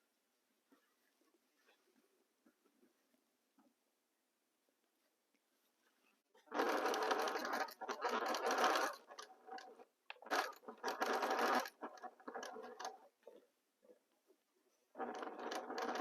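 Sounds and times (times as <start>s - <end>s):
sewing machine stitching: 6.4s - 13.4s, 14.9s - 16.0s.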